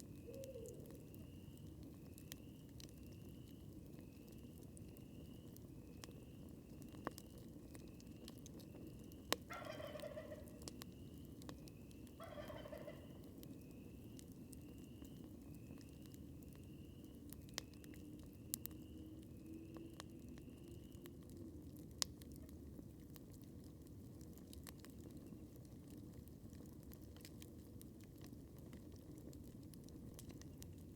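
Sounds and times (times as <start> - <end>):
campfire crackling and popping: 0.0 - 30.9
distant turkey gobbling: 9.5 - 10.7, 12.2 - 13.2.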